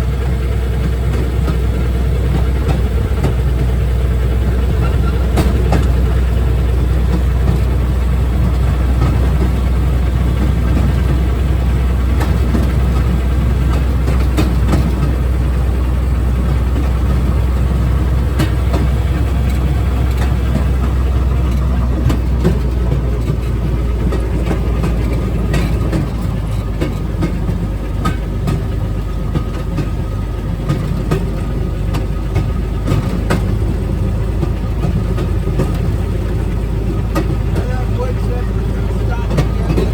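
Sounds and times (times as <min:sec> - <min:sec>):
railroad speeder engine drone: 0:00.0 - 0:39.9
steel wheels rumbling on rail: 0:00.0 - 0:39.9
wheels clacking over rail joints: 0:00.0 - 0:39.9.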